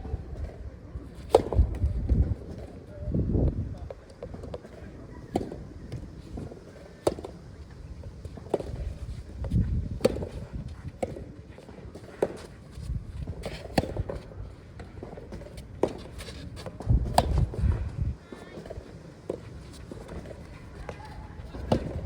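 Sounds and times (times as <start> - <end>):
wind buffeting microphone: 1.4 - 4.5, 8.0 - 11.3, 16.7 - 18.2
tennis balls struck by rackets: 4.2 - 7.4, 8.2 - 12.6, 13.2 - 22.0
tennis balls bouncing: 8.2 - 12.6, 13.2 - 22.0.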